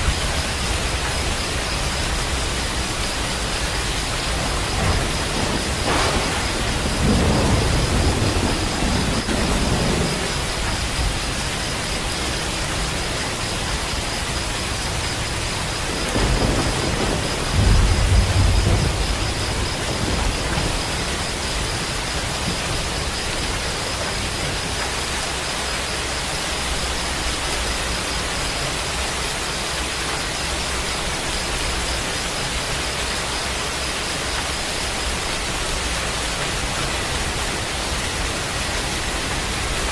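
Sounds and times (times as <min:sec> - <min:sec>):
rain hiss: 0:00.0 - 0:39.9
deep rolls of thunder: 0:00.1 - 0:13.0, 0:14.9 - 0:24.8.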